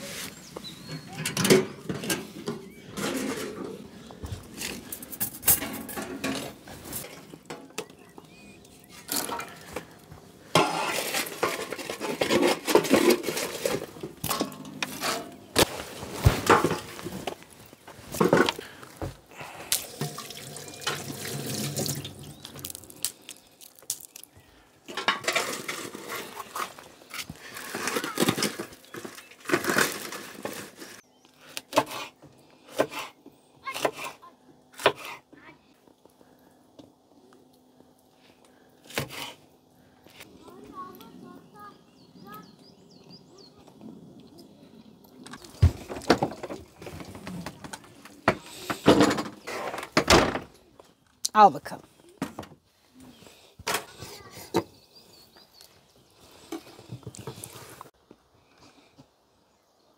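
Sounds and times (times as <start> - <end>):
running water: 19.4 - 23.0.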